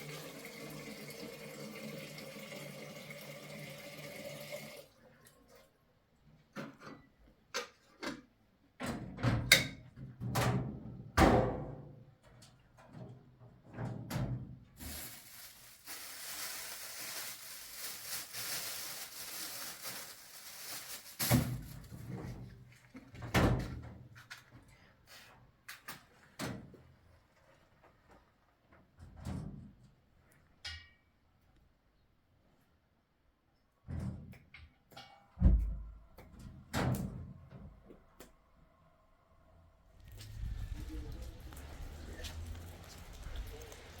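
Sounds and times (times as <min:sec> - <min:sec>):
steady hiss: 0:40.0 - 0:44.0.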